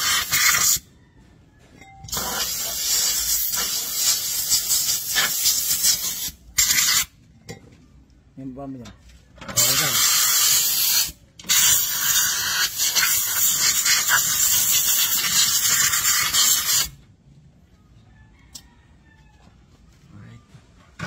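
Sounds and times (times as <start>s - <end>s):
spray can hissing: 2.1s - 7.1s, 9.6s - 17.0s.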